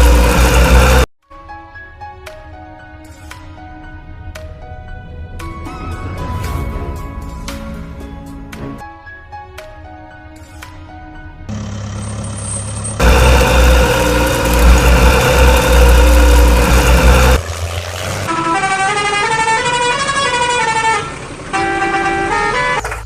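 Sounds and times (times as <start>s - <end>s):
horn-like tones: 18.2s - 23.0s.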